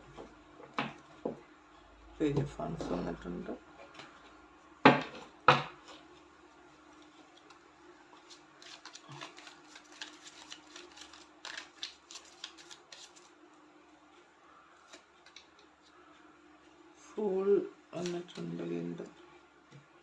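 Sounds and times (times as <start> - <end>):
faint steady hum: 0.0 - 20.0
cards being shuffled: 8.2 - 13.4, 18.0 - 18.5.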